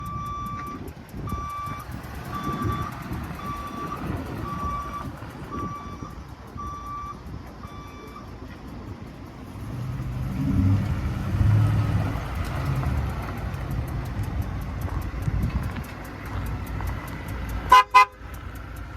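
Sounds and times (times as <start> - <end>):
backup alarm beeping: 0.0 - 8.4
truck engine rumbling: 0.0 - 18.9.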